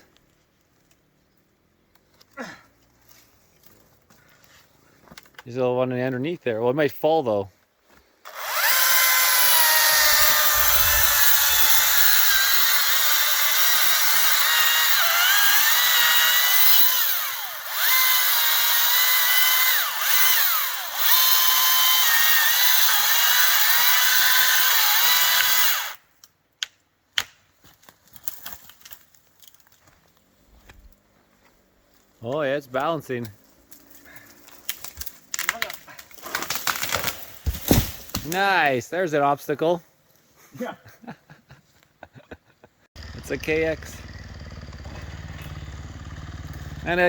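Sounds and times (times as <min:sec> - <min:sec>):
electric chainsaw cutting wood: 0:08.2 - 0:26.0, 0:43.0 - 0:47.0.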